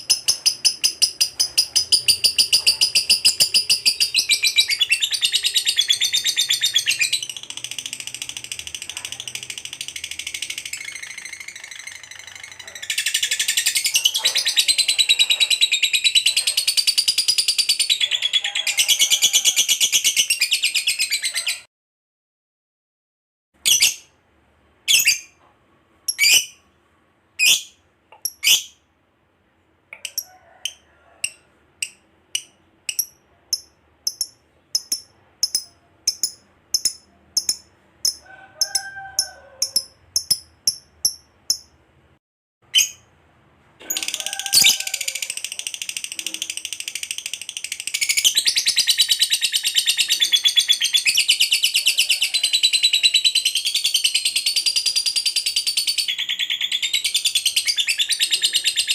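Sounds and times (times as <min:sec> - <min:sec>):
lovebird chirping: 0:00.0 - 0:21.6, 0:23.6 - 0:24.1, 0:24.9 - 0:25.4, 0:26.1 - 0:26.7, 0:27.4 - 0:28.8, 0:30.0 - 0:38.8, 0:39.6 - 0:41.7, 0:47.3 - 0:51.8.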